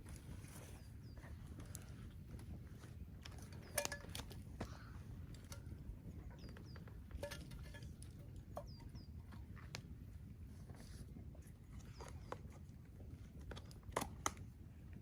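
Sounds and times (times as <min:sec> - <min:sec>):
small bird chirping: 0:08.6 - 0:09.2.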